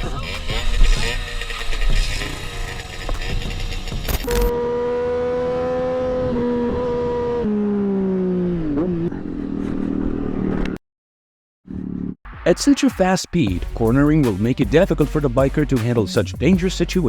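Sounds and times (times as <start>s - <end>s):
motorcycle engine revving: 0.0s - 10.8s, 11.6s - 12.2s.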